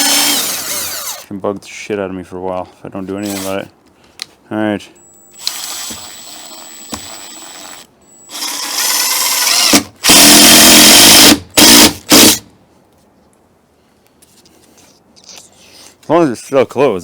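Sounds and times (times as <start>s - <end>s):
power drill running: 0.0s - 1.3s, 5.4s - 12.4s.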